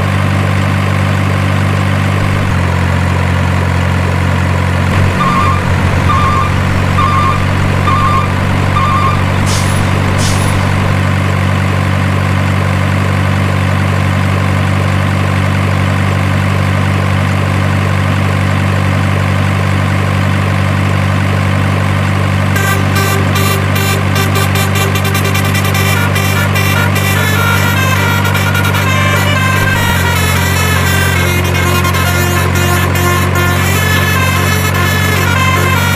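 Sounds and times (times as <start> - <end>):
heavy truck engine idling: 0.0 - 35.9
reversing alarm beeps: 5.0 - 11.0
air brake hiss: 9.4 - 11.0
music: 22.7 - 35.9.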